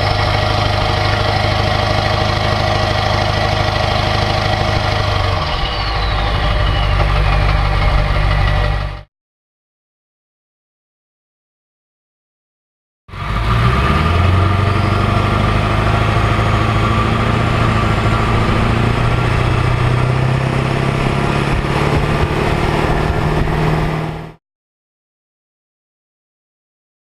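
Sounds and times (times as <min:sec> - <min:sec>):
diesel engine exhaust running: 0:00.0 - 0:09.1, 0:13.1 - 0:24.4.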